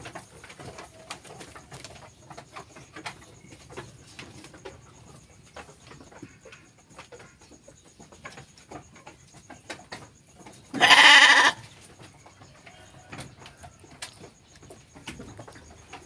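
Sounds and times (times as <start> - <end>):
sheep bleating: 10.8 - 11.6.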